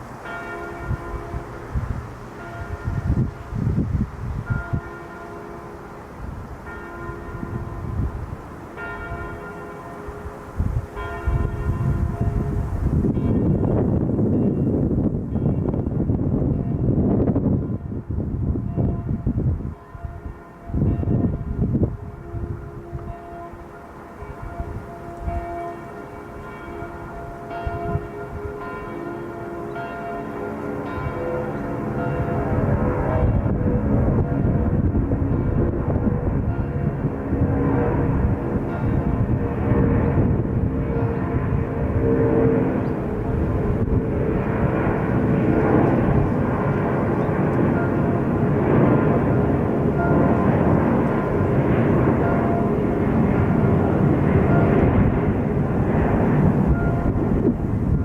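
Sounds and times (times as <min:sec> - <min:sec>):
wind rumble on microphone: 0:00.0 - 0:58.0
jet aircraft rumble: 0:30.5 - 0:58.0.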